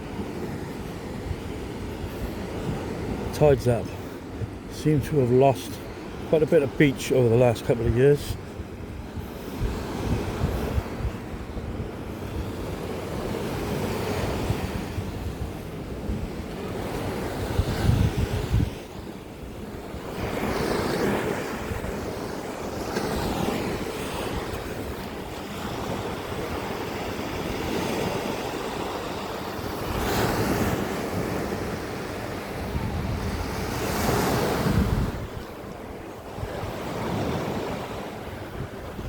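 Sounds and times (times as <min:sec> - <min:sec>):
sea waves washing onto beach: 0:00.0 - 0:39.0
wind buffeting microphone: 0:07.7 - 0:28.8, 0:29.6 - 0:39.0.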